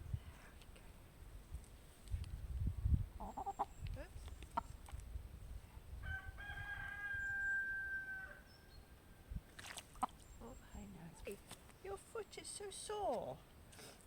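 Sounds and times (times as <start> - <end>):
rooster crowing: 6.0 - 8.5.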